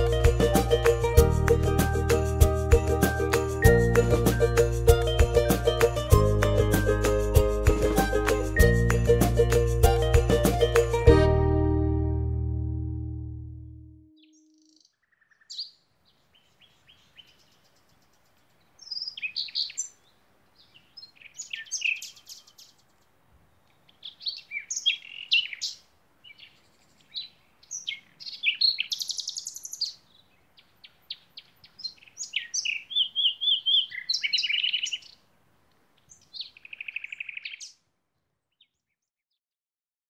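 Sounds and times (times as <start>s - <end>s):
songbirds chirping and trilling: 14.2s - 37.9s.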